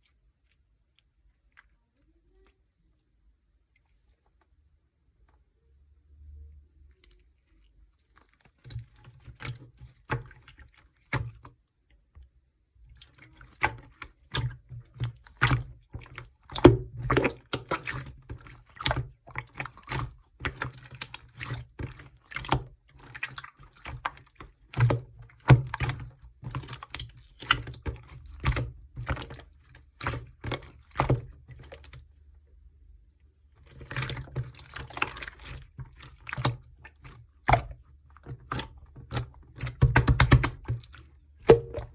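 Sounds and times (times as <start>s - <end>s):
slime sticky clicks and wet pops: 33.7s - 41.9s.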